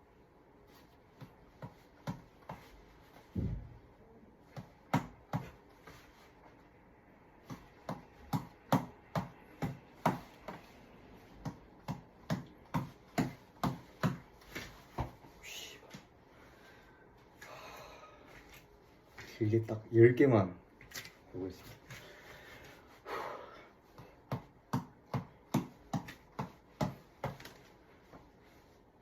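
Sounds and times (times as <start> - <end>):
tap ball being punched: 1.2 - 2.7, 4.5 - 5.6, 7.4 - 10.7, 11.4 - 14.3, 24.0 - 27.6
heavy thump: 3.3 - 3.8.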